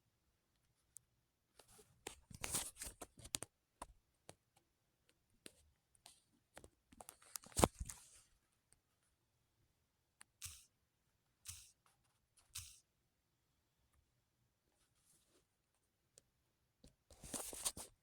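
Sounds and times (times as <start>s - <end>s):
small clicks and taps: 11.5s - 12.8s
rustling and scraping: 17.2s - 18.0s.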